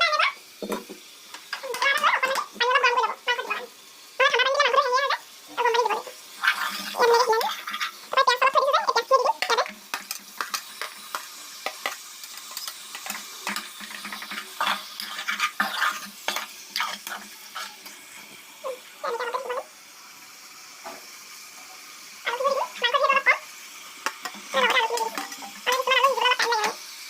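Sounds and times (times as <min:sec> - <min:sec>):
frying sizzle: 0:00.0 - 0:27.0
metal spatula scraping pan: 0:09.4 - 0:17.8.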